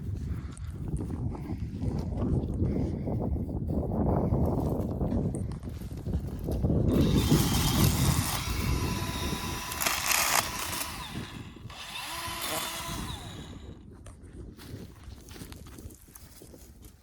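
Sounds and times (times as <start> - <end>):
power tool running: 6.9 - 13.7.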